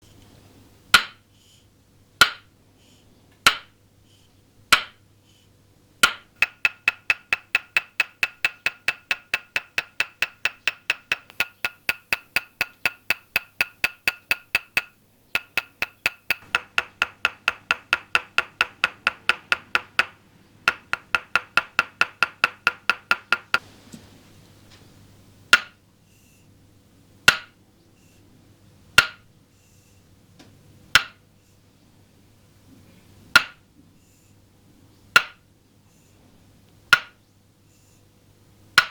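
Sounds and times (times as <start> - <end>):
wooden mallet tapping wooden peg: 0.9 - 1.2, 2.2 - 2.5, 3.4 - 3.8, 4.7 - 5.0, 6.0 - 23.6, 25.5 - 25.8, 27.3 - 27.6, 29.0 - 29.3, 30.9 - 31.2, 33.3 - 33.6, 35.1 - 35.4, 36.9 - 37.2.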